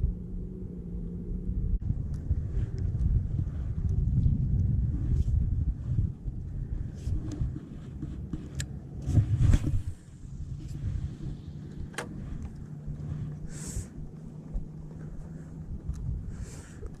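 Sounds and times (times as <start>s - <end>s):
low motor hum: 0.0s - 17.0s
wind buffeting microphone: 0.0s - 17.0s.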